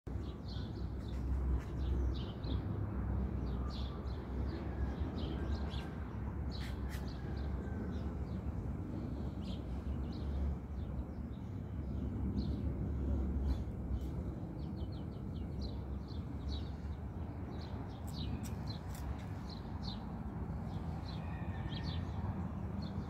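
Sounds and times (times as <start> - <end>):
steady low rumble: 7.4 - 21.2
small birds chirping: 9.0 - 21.9.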